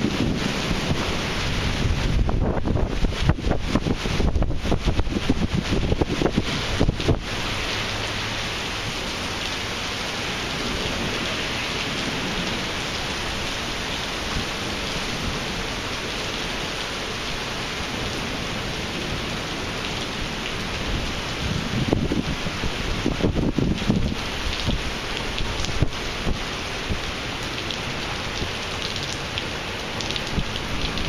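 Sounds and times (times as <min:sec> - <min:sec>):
wind buffeting microphone: 0:00.0 - 0:07.4, 0:20.7 - 0:27.7
heavy rain hissing: 0:00.0 - 0:31.0.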